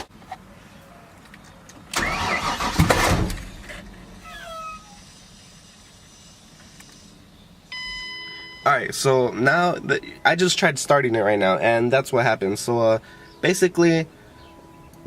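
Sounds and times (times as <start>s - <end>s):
car engine cranking: 1.9s - 6.2s.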